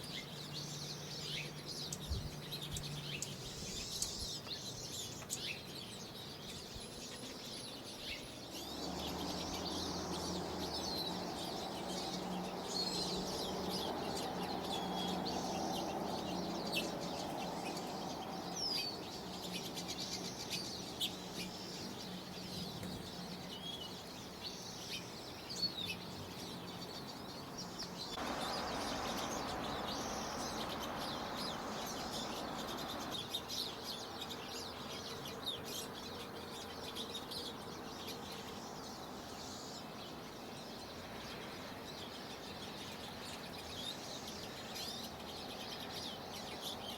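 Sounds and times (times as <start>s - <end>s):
birds chirping and whistling: 0.0s - 39.6s.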